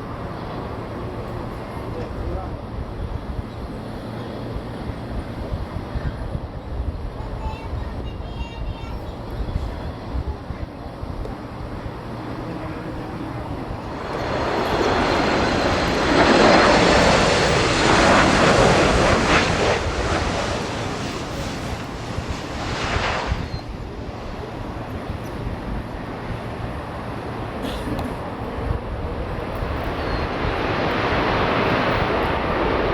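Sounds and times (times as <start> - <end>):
jet airliner passing: 9.5 - 32.9.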